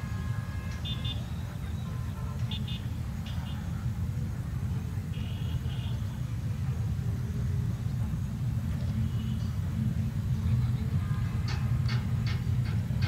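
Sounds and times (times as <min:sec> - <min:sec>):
diesel locomotive engine rumble: 0:00.0 - 0:13.0
wheels clacking over rail joints: 0:10.6 - 0:13.0.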